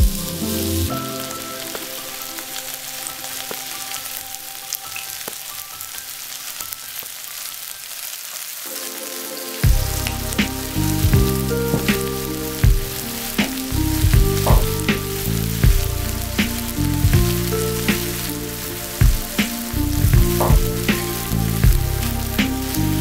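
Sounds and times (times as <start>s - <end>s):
music with a deep beat: 0.0s - 1.0s, 9.6s - 23.0s
food sizzling in a pan: 0.1s - 23.0s.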